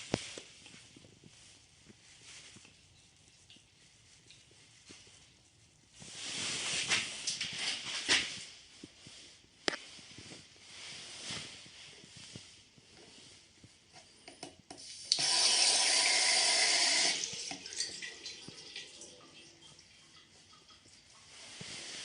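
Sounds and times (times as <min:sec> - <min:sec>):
water running from tap: 0:14.8 - 0:21.2.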